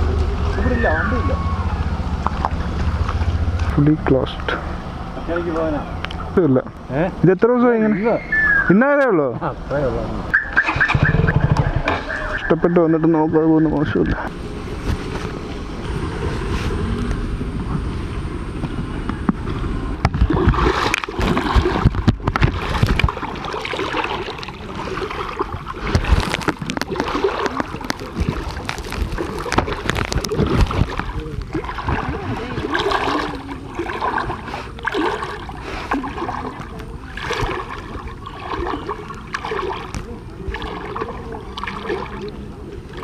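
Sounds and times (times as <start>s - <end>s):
water splashing and sloshing: 0.0s - 43.0s
wind rumble on microphone: 10.2s - 23.4s, 25.4s - 33.7s.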